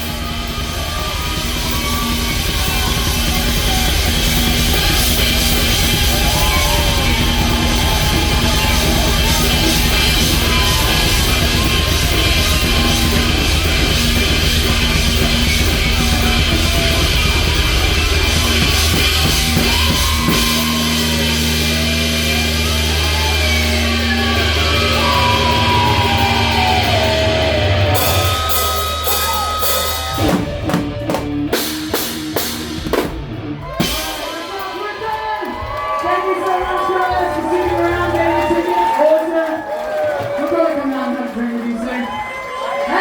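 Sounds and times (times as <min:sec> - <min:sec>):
drum hits: 0:00.0 - 0:22.4, 0:27.8 - 0:35.8
heavy rock band playing: 0:00.0 - 0:38.8.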